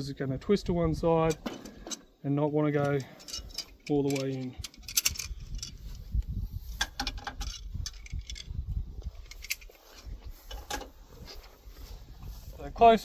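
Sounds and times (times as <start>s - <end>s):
metallic clinks of wrench and parts: 2.8s - 5.9s, 7.1s - 8.6s.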